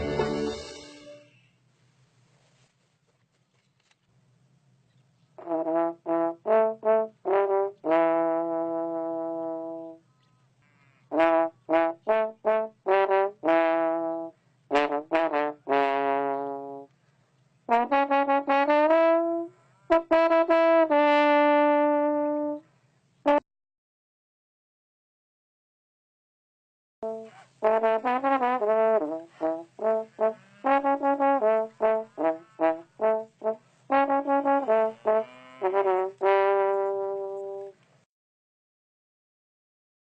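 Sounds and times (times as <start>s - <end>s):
brass instrument playing: 0.0s - 1.4s, 5.4s - 10.0s, 11.1s - 16.9s, 17.7s - 22.6s, 27.0s - 37.8s
faint low hum: 1.2s - 5.4s.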